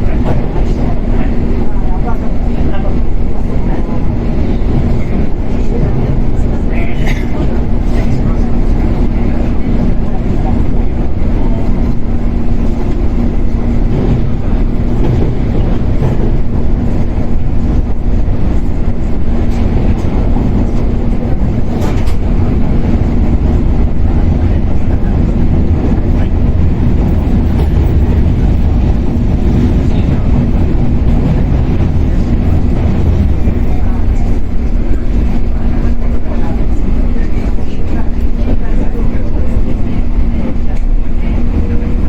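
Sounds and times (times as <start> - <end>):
constant hum: 0.0 - 42.0
electric train rumbling: 0.0 - 42.0.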